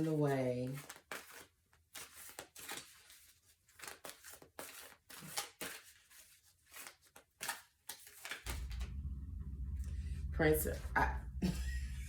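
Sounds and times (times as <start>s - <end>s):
cards rustling and flicking: 0.6s - 8.5s.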